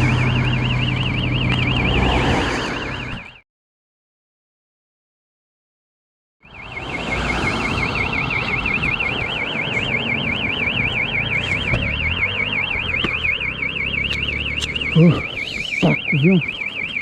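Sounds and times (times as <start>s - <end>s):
car alarm siren warbling: 0.0s - 3.4s, 6.4s - 17.0s
engine and road rumble: 0.0s - 3.4s, 6.4s - 17.0s.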